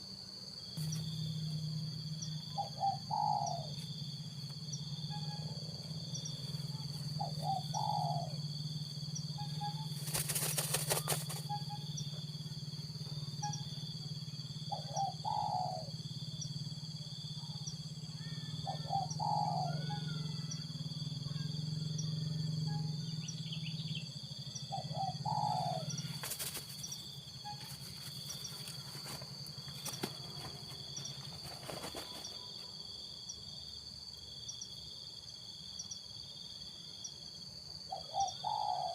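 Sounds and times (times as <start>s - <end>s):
dove cooing: 2.3s - 3.8s, 6.4s - 8.6s, 9.4s - 12.1s, 14.7s - 16.0s, 18.2s - 20.6s, 24.6s - 32.6s, 37.9s - 38.9s
high insect buzzing: 9.2s - 12.1s, 26.0s - 32.6s
rustling: 26.2s - 32.5s.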